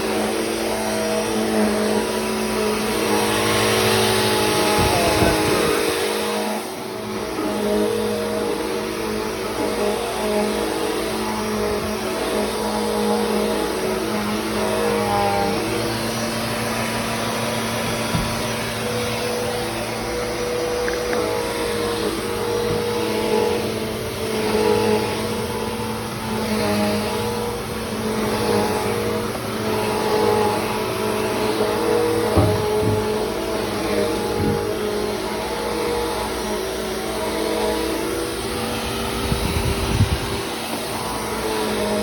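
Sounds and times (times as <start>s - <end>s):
vacuum cleaner running: 0.0s - 42.0s.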